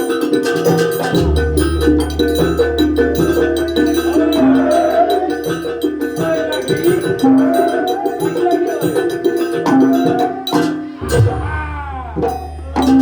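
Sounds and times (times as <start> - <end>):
held pitched tones: 0.0 - 13.0
rapid percussion strokes: 0.0 - 13.0
sliding melody line: 0.1 - 10.4.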